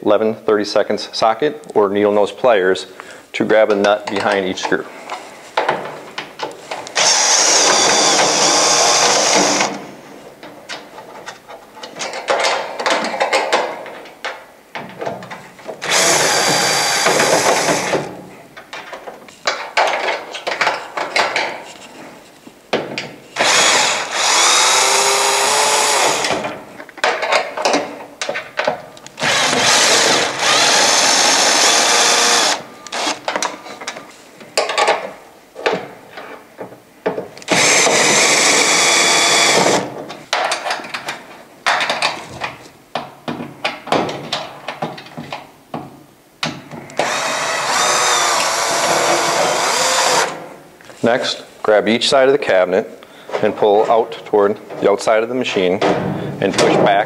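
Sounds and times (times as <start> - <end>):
cordless drill running: 7.0 - 9.8, 15.8 - 18.1, 23.4 - 26.4, 29.2 - 33.2, 37.5 - 39.9, 47.0 - 50.4.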